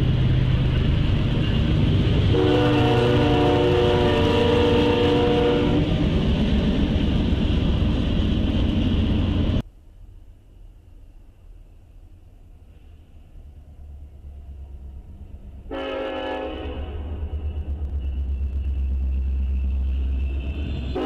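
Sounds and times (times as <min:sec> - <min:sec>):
diesel locomotives rumbling past: 0:00.0 - 0:21.0
locomotive air horn chord: 0:02.3 - 0:05.9, 0:15.7 - 0:17.2.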